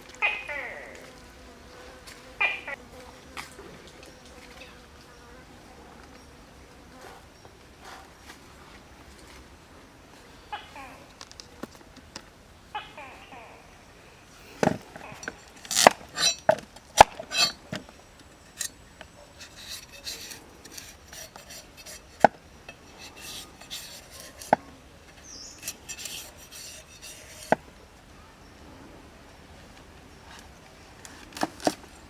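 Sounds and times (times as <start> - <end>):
light scraping: 14.4 - 27.6.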